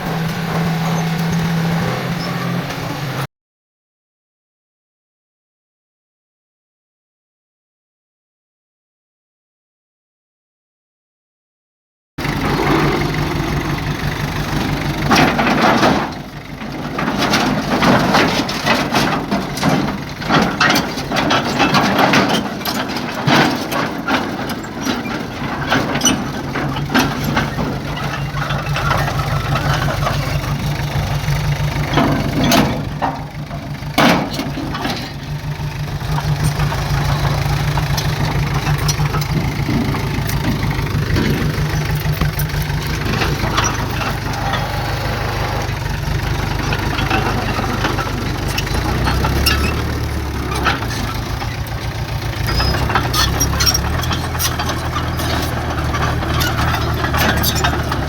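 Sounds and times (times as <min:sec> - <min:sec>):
diesel machinery engine drone: 0:00.0 - 0:03.3, 0:12.2 - 0:58.0
metal knocks and clanks: 0:12.2 - 0:58.0.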